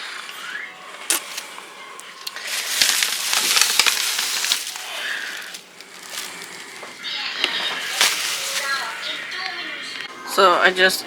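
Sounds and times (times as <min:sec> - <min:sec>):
food packaging crinkling: 0:01.0 - 0:09.6.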